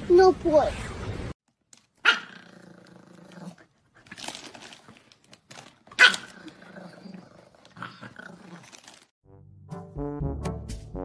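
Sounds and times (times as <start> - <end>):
dog barking: 2.0 - 2.4, 6.0 - 6.3.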